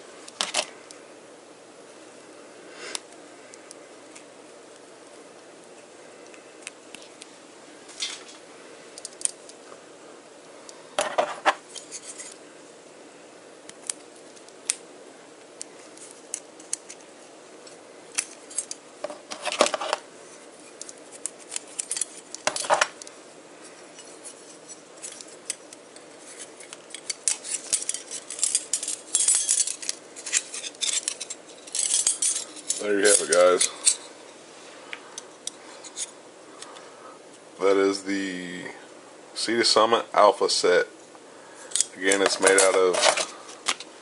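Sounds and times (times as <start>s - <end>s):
metal utensils clinking: 26.9s - 34.1s.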